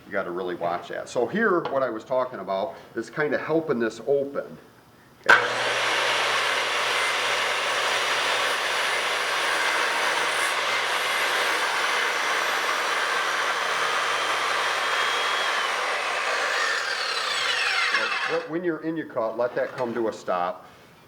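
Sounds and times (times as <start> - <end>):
circular saw cutting wood: 5.3 - 18.6.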